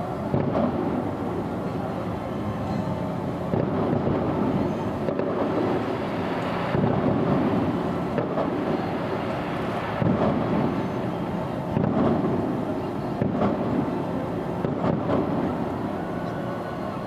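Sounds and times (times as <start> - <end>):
distant fireworks booming: 0.1 - 2.0, 3.4 - 16.2.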